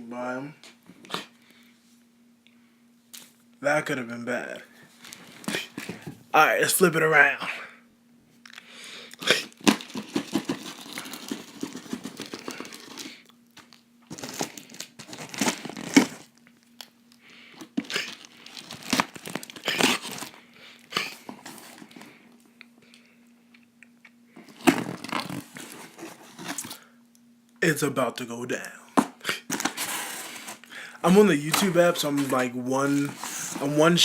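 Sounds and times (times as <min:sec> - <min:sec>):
plastic wrap crinkling: 0:09.3 - 0:22.2, 0:29.4 - 0:34.0.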